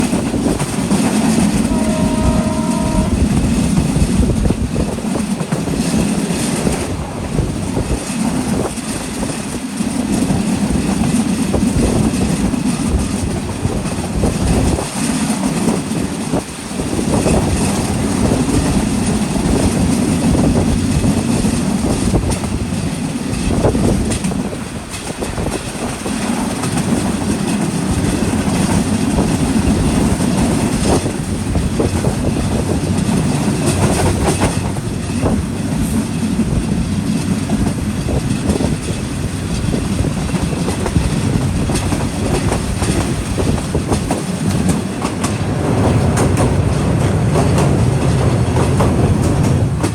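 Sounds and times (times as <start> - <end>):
train carriages rumbling: 0.0 - 49.9
wheels clattering over rail joints: 0.0 - 49.9
brief tone: 1.7 - 3.1.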